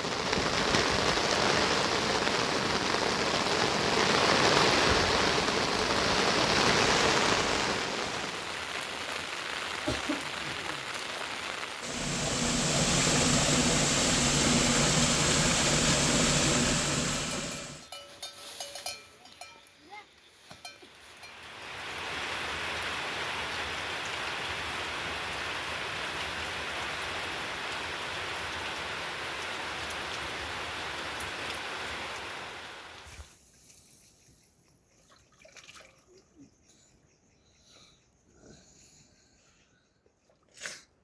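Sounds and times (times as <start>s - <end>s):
heavy rain pouring: 0.0s - 17.8s, 21.5s - 33.1s.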